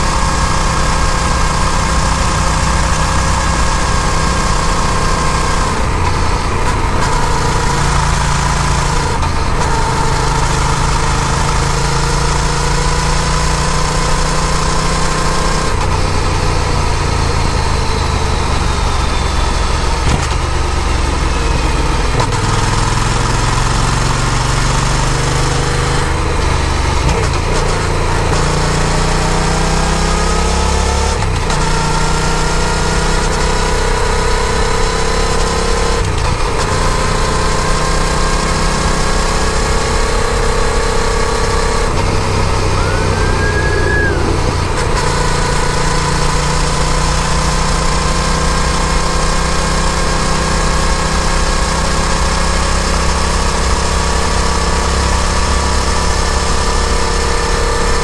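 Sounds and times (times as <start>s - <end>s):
motorcycle engine running: 0.0s - 58.0s
wind rushing: 42.0s - 45.6s.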